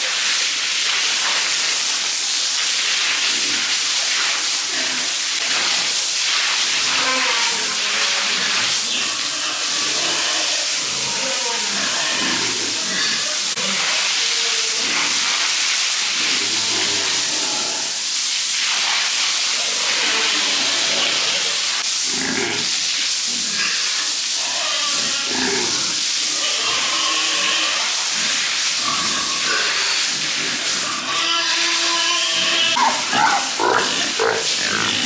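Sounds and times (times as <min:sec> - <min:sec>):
water spraying from hose: 0:00.0 - 0:35.0
pigs grunting and squealing: 0:06.8 - 0:15.4, 0:16.1 - 0:18.0, 0:19.6 - 0:35.0.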